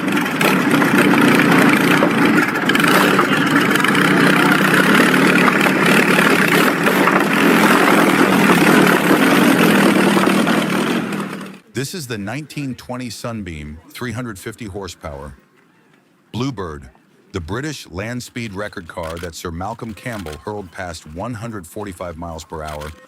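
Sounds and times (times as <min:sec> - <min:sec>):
aero engine idling loudly: 0:00.0 - 0:11.7, 0:18.4 - 0:22.9.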